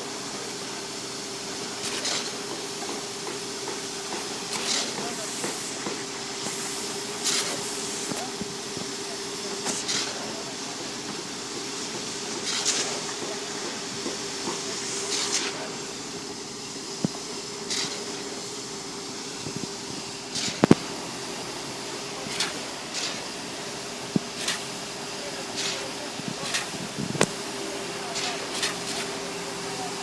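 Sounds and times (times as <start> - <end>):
concrete pump humming: 0.0 - 30.0
short hiss: 4.2 - 8.3, 14.2 - 16.0.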